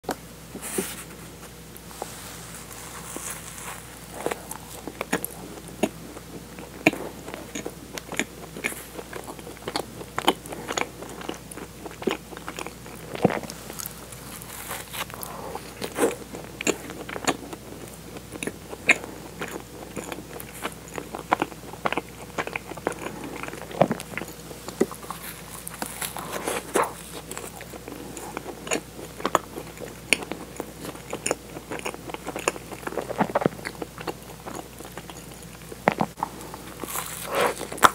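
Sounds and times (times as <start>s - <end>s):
biting and chewing donut: 3.2s - 37.9s.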